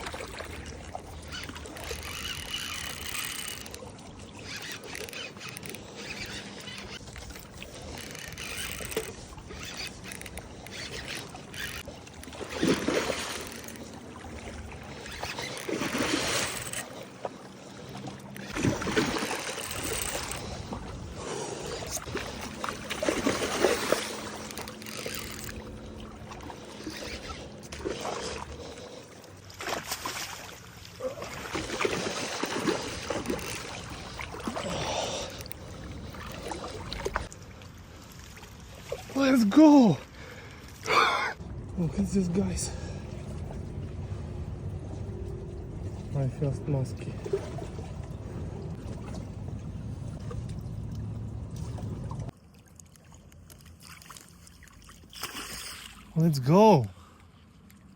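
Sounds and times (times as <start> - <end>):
water splashing and sloshing: 0.0 - 57.9.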